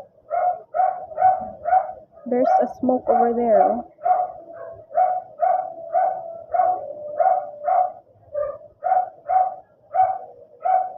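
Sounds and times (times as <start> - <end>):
dog barking: 0.3 - 3.4, 4.0 - 10.9.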